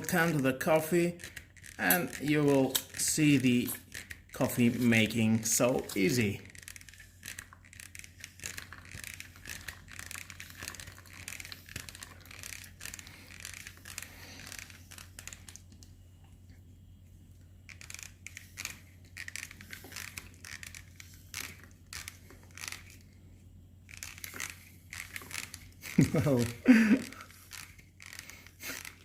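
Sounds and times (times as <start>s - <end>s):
plastic clicks of hand pump: 0.0s - 15.9s, 23.9s - 29.0s
crackling of coffee brewing: 0.0s - 16.5s.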